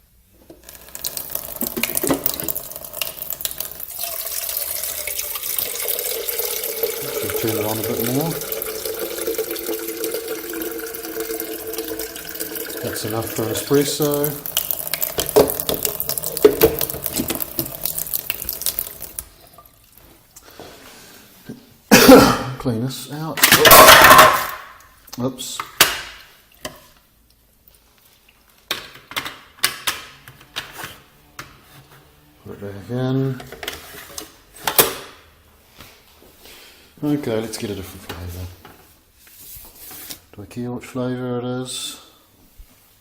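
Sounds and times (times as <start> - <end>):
tap water filling tank: 0.5 - 20.1.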